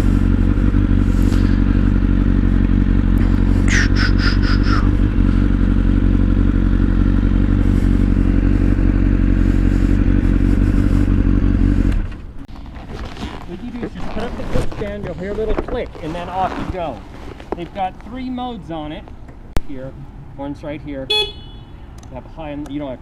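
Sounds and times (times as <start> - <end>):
engine droning: 0.0 - 23.0
quick high chirps: 3.7 - 5.2.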